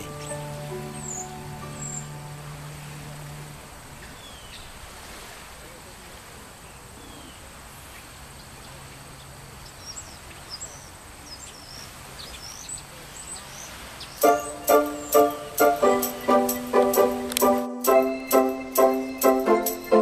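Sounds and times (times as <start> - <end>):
small birds chirping: 0.0 - 3.1, 4.0 - 4.8, 6.6 - 17.6
music with keyboard notes: 0.0 - 3.8, 14.2 - 20.0
steady outdoor hiss: 0.0 - 20.0.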